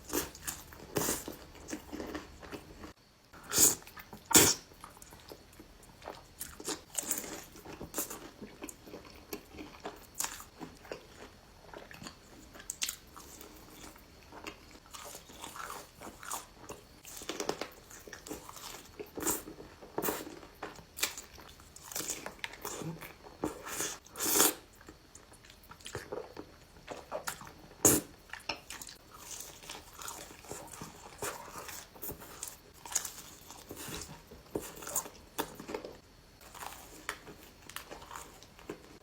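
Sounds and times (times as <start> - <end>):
person chewing crunchy food: 0.0 - 39.0.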